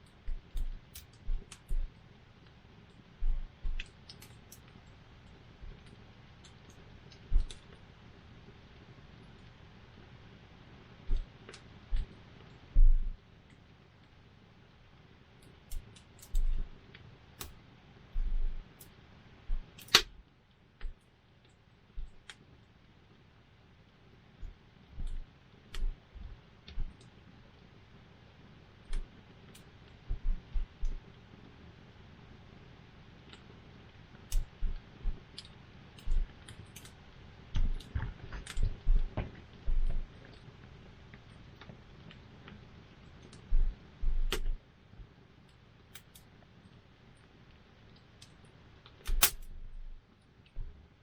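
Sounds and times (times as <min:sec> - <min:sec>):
campfire crackling and popping: 0:18.6 - 0:22.6, 0:33.2 - 0:48.4.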